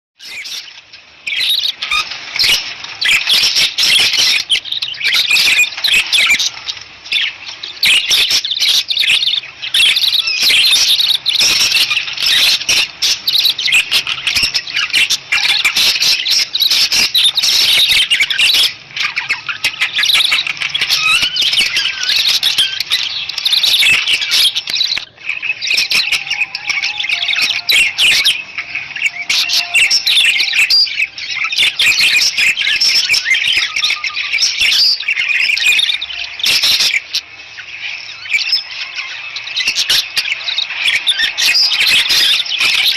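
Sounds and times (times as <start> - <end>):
budgerigars chattering: 0.2 - 42.9.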